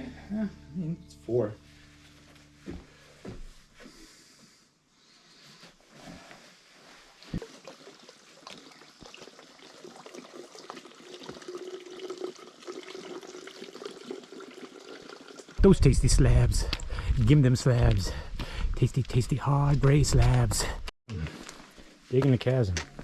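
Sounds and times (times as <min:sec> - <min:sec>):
faint trickling water: 0:07.0 - 0:15.6.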